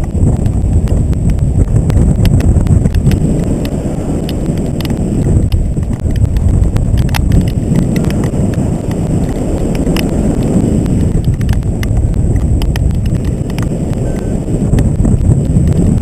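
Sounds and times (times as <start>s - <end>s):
sharp ticks: 0.0s - 16.0s
wind rushing over microphone: 0.0s - 16.0s.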